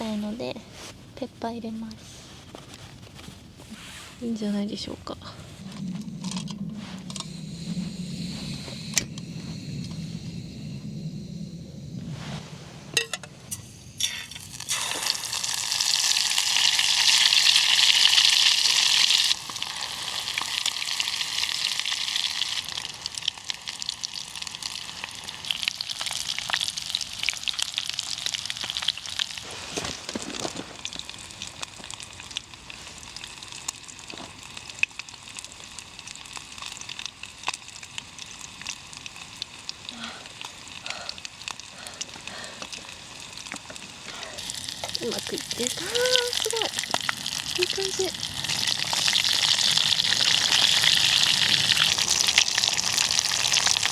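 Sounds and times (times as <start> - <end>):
chicken frying in hot oil: 13.0 - 53.9
oil crackling: 13.0 - 53.9.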